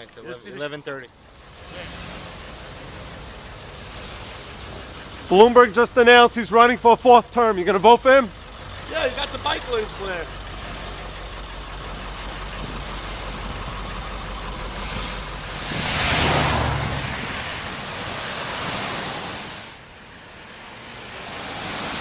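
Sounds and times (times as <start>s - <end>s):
street traffic: 0.0s - 22.0s
vehicle passing close: 7.4s - 22.0s.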